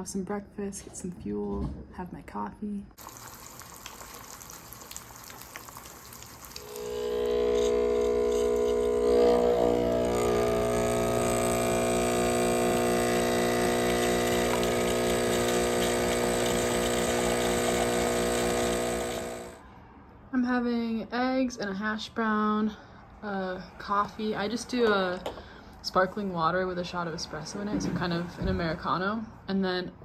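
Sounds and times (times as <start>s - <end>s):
espresso machine pump humming: 6.4s - 19.6s.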